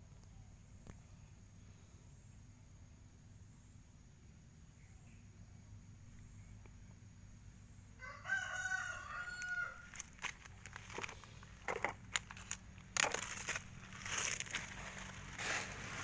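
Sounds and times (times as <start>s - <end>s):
rooster crowing: 8.0s - 10.0s
sharp clicks and knocks: 10.0s - 13.7s.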